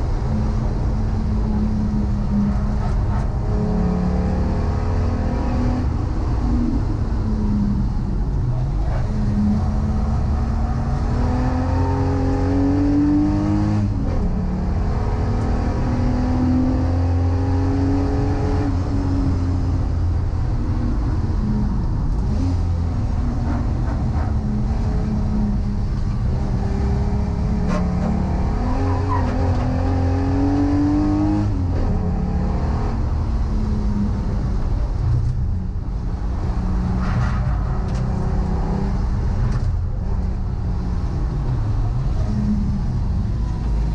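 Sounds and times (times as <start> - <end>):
car engine accelerating hard: 0.0 - 43.9.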